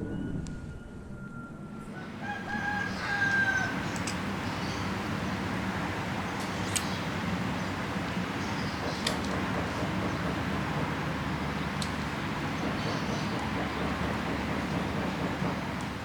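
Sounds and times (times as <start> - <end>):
steady rushing background noise: 0.0 - 16.0
rooster crowing: 1.8 - 5.0.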